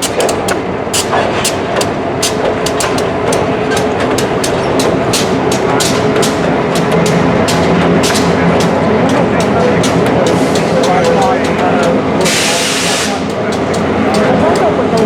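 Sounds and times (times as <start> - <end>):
freight cars rumbling: 0.0 - 15.0
steel wheels clicking over rail joints: 0.0 - 15.0.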